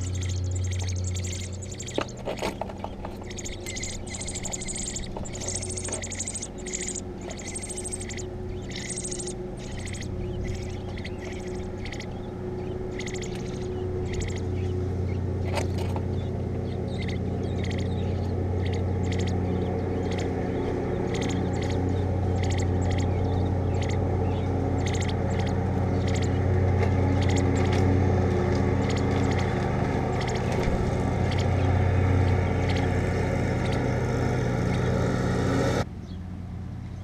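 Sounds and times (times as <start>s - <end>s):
nestling birds cheeping: 0.0s - 36.2s
steady low hum: 0.0s - 37.0s.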